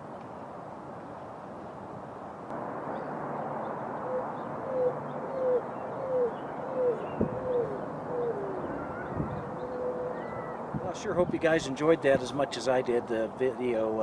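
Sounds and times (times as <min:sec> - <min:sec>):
roadrunner cooing: 0:04.0 - 0:11.4.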